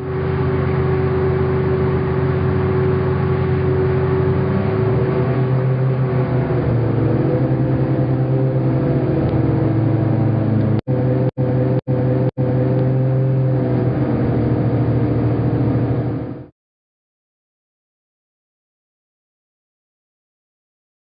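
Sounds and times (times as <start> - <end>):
hovercraft engine droning: 0.0 - 16.5.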